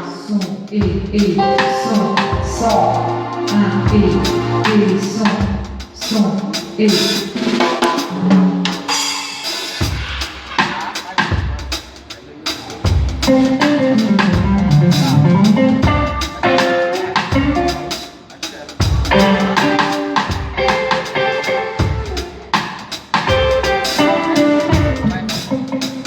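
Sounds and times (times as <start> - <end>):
drum kit strikes: 0.9 - 26.0
instruments sustaining notes: 1.2 - 5.8.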